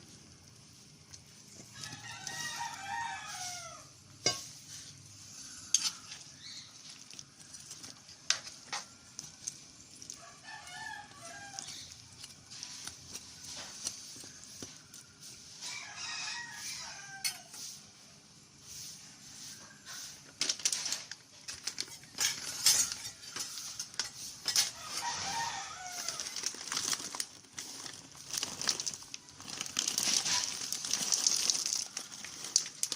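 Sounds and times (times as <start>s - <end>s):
faint sizzling in a pan: 0.0s - 32.9s
rooster crowing: 1.7s - 4.0s, 10.2s - 12.0s, 15.6s - 17.7s, 24.6s - 26.6s
utensil clinking against pan: 4.2s - 4.5s.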